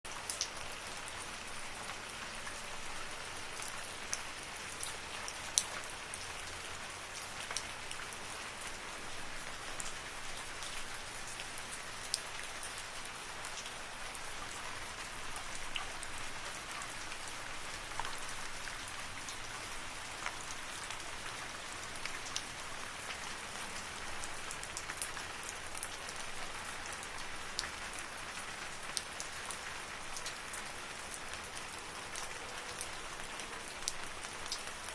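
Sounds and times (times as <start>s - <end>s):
raindrops ticking on leaves: 0.1s - 34.9s.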